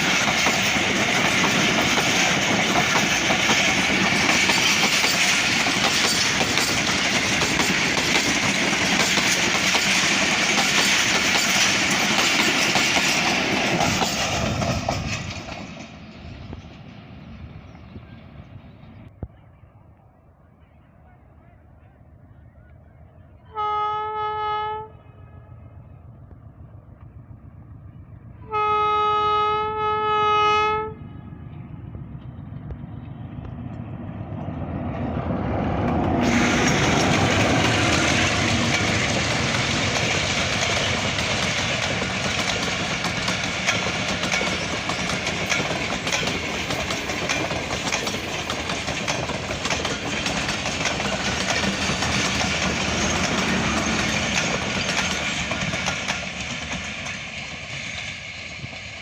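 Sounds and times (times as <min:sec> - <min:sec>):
train wheel-on-rail noise: 0:00.0 - 0:59.0
train horn blasts: 0:23.4 - 0:25.7, 0:28.4 - 0:31.6.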